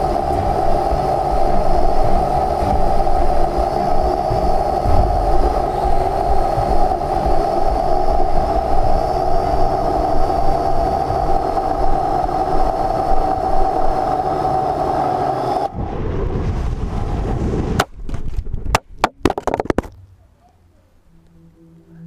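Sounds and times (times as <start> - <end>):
drone propellers whining: 0.0 - 15.8, 20.6 - 22.0
wind noise on microphone: 0.0 - 20.0.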